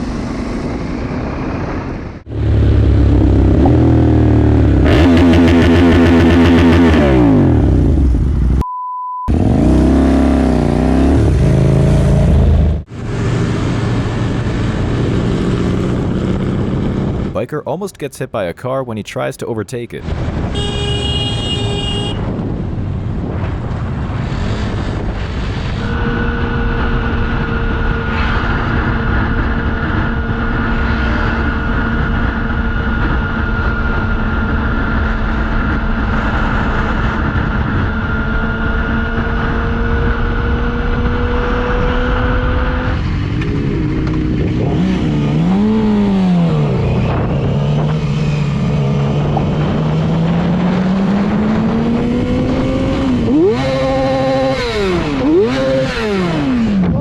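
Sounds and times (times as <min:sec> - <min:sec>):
wind noise: 0:00.0 - 0:04.2, 0:20.0 - 0:55.2.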